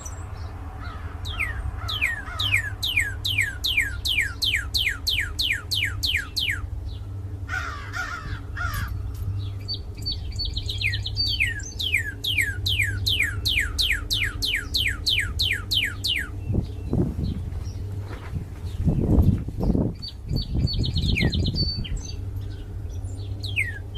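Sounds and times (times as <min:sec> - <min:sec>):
steady low hum: 0:00.0 - 0:23.9
harsh bird call: 0:00.8 - 0:06.7
bird whistling song: 0:01.2 - 0:07.0, 0:09.4 - 0:17.9, 0:18.7 - 0:23.9.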